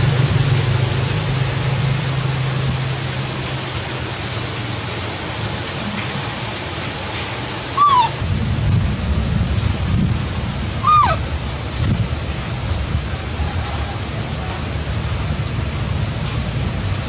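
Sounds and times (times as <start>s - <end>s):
heavy rain falling: 0.0s - 17.0s
high squeak falling in pitch: 7.8s - 8.2s, 10.8s - 11.2s.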